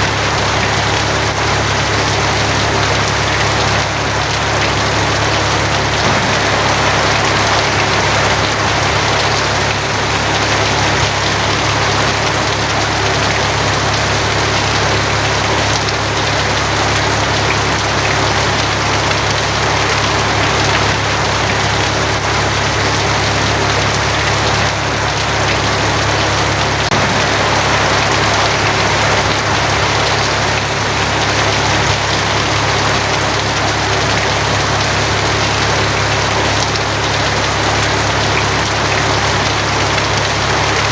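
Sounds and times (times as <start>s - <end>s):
heavy rain on a tin roof: 0.0s - 40.9s
low rumble: 6.0s - 11.1s, 26.9s - 32.1s.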